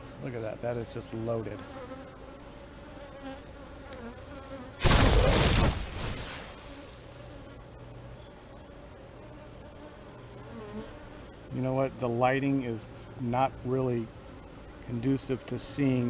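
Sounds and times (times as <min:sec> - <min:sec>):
loud rush of noise: 0:04.8 - 0:07.2.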